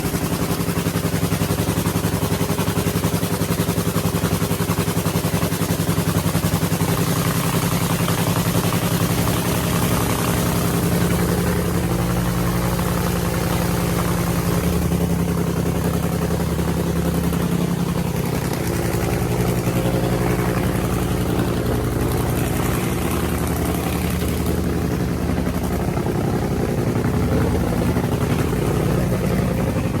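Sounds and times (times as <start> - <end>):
racing car engine idling: 0.0 - 30.0.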